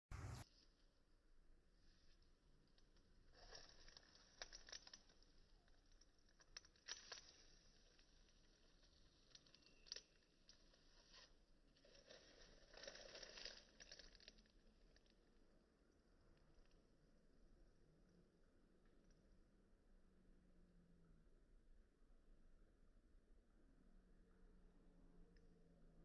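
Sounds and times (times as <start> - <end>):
crunching and crinkling: 2.0 - 15.4.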